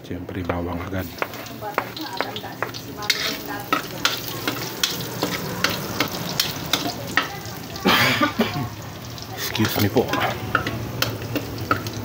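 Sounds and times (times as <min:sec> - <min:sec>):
garlic sizzling in a pan: 0:00.0 - 0:12.0
metal spatula scraping a pan: 0:01.0 - 0:07.5, 0:09.4 - 0:12.0.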